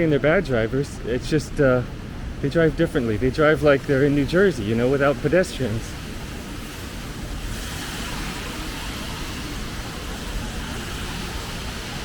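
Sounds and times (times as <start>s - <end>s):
low traffic rumble: 0.0s - 12.0s
tyres hissing on wet road: 3.0s - 12.0s.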